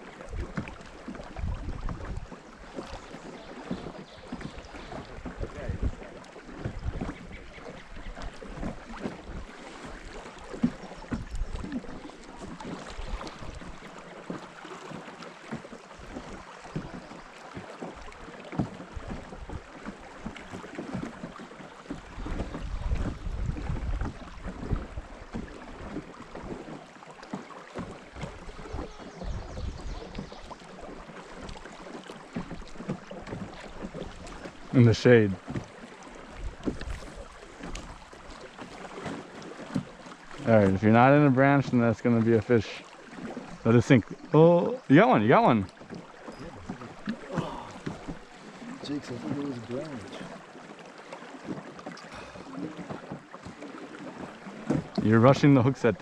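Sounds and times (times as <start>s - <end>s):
light knocks from small boat: 0.0s - 56.0s
water splashing: 0.0s - 56.0s
wind buffeting microphone: 1.3s - 2.3s, 5.2s - 6.0s, 6.6s - 9.5s, 22.1s - 25.4s, 28.2s - 30.3s.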